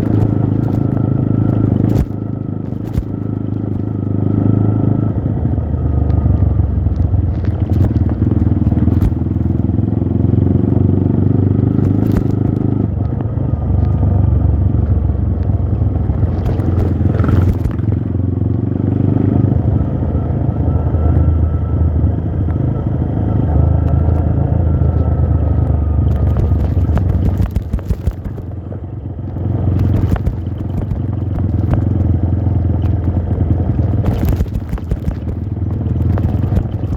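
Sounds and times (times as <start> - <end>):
motorcycle engine under load: 0.0 - 36.9
brief clatter: 26.1 - 28.5.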